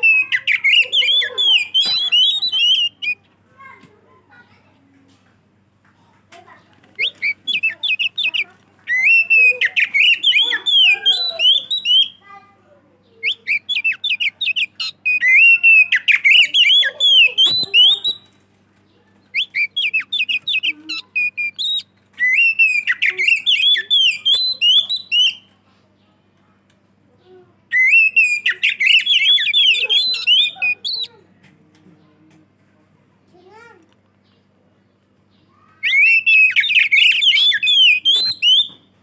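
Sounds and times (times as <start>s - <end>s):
bird singing whistled phrases: 0.0s - 3.2s, 7.0s - 12.2s, 13.2s - 18.4s, 19.3s - 25.5s, 27.7s - 31.2s, 35.8s - 38.9s.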